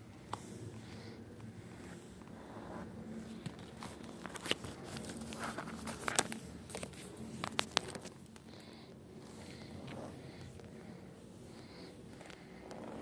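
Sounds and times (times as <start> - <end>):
hands crackling and clicking: 3.4 - 8.7.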